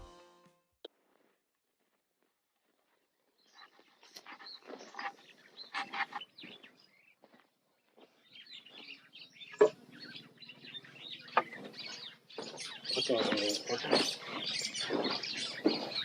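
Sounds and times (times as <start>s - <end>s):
birds chirping: 3.3s - 16.0s.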